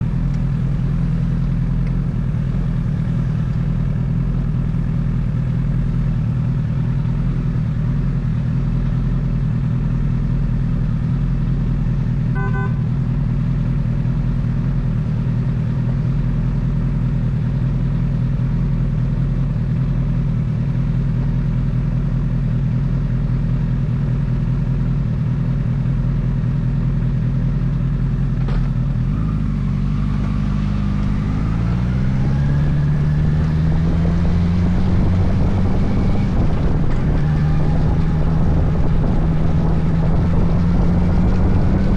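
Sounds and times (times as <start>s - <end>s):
motorcycle engine running steadily: 0.0s - 41.9s
car horn honk: 12.3s - 13.2s.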